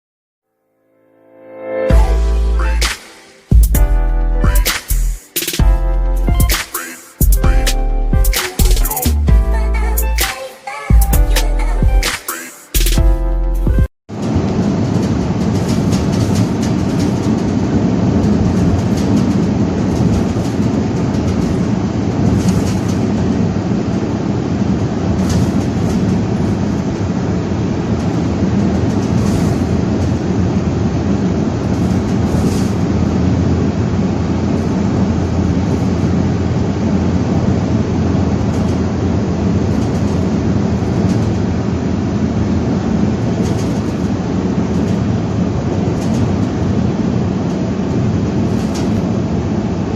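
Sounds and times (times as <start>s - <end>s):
vehicle rumbling on the move: 12.8s - 49.9s
gusting wind: 14.1s - 49.9s.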